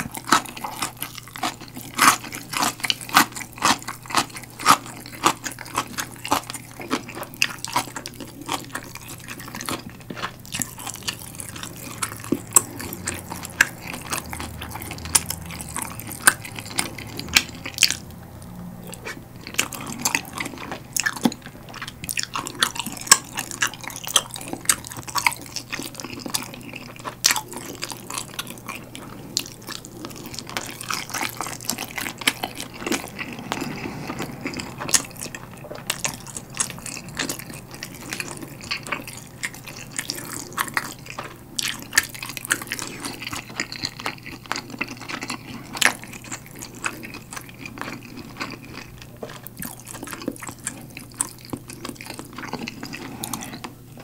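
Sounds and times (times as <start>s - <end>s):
biting and chewing food: 0.0s - 54.0s.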